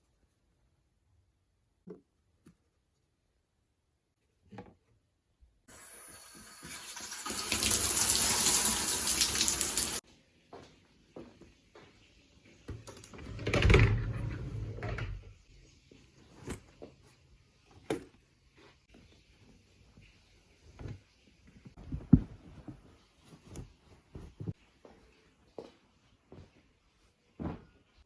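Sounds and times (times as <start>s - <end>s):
tap water running into sink: 5.7s - 10.0s.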